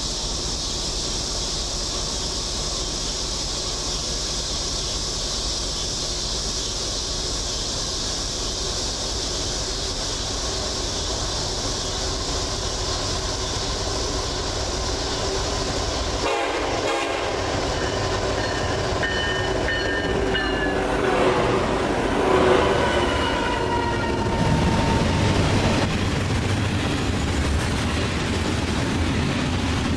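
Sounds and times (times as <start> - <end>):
freight train wheel noise: 0.0 - 29.9
locomotive air horn blasts: 16.2 - 17.6, 20.7 - 23.4.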